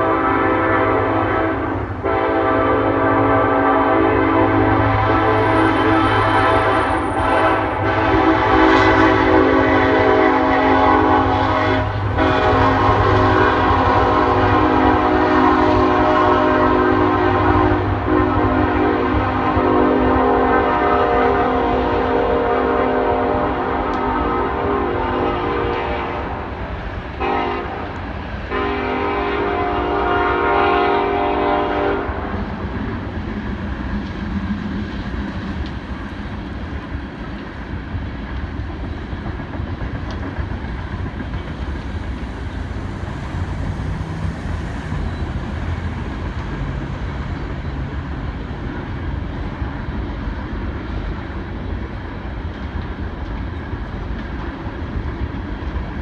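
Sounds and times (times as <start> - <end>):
locomotive air horn: 0.0 - 32.6
train wheels rumbling on rail: 0.0 - 56.0.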